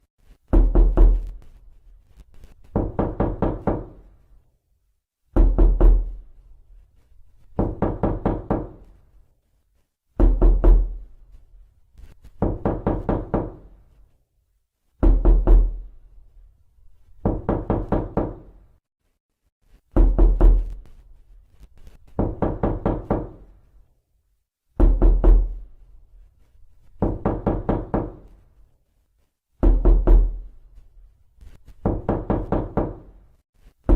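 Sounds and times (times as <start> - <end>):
knocking on a door: 0.5 - 1.4, 2.7 - 4.1, 5.3 - 6.2, 7.5 - 8.9, 10.2 - 11.0, 12.4 - 13.7, 15.0 - 15.9, 17.2 - 18.6, 19.9 - 20.8, 22.2 - 23.5, 24.8 - 25.6, 27.0 - 28.3, 29.6 - 30.5, 31.8 - 33.2.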